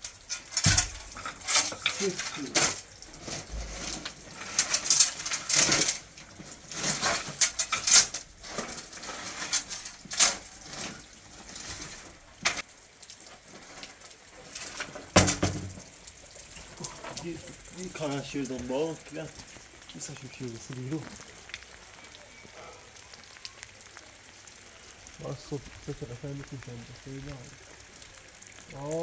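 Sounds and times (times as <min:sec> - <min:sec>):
small hard objects clinking: 0:00.0 - 0:12.7.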